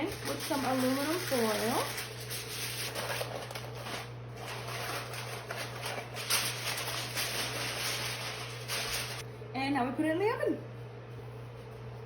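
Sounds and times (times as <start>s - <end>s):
aluminum foil crinkling: 0.0s - 9.2s.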